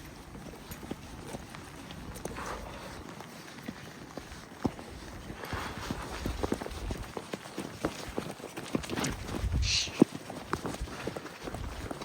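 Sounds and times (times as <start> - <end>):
horse hooves running: 0.0 - 12.0.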